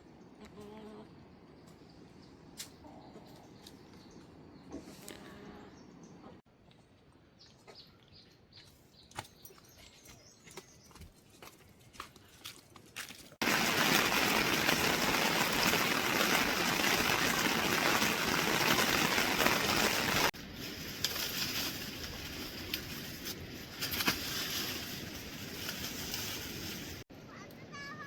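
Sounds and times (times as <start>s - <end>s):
rushing water: 13.4s - 20.3s.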